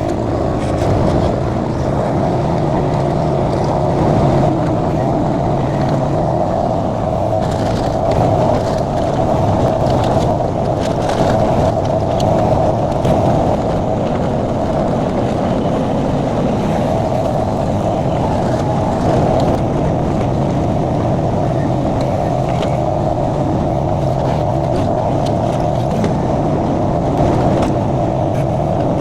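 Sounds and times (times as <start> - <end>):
engine running: 0.0 - 29.0.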